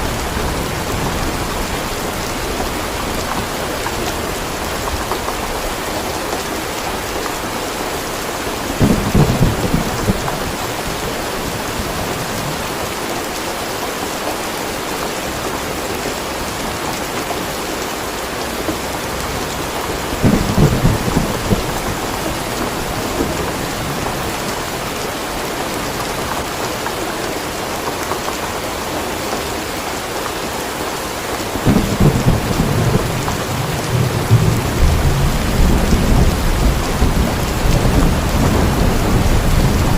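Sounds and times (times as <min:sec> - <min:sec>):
steady rain falling: 0:00.0 - 0:39.9
thunder rumbling: 0:08.5 - 0:12.8, 0:19.2 - 0:25.0, 0:31.6 - 0:39.9.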